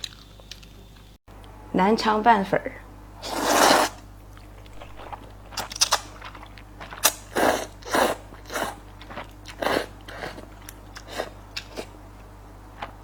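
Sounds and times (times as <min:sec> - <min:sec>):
wet bites and crunchy chews: 0:03.8 - 0:12.0.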